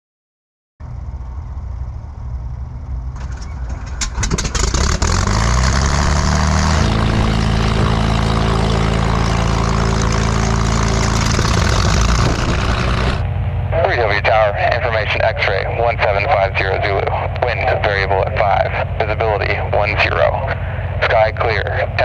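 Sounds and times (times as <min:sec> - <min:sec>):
piston aircraft engine idling: 0:00.9 - 0:22.0
starter cranking with rapid clatter: 0:03.2 - 0:06.8, 0:09.3 - 0:13.2.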